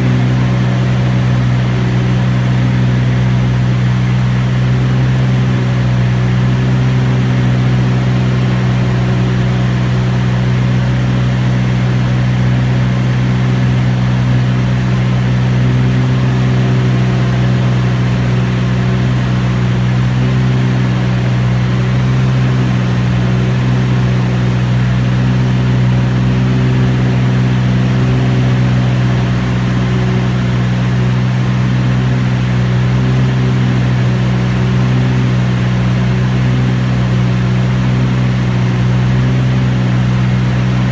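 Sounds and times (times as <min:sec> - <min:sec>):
propeller plane engine drone: 0:00.0 - 0:40.9.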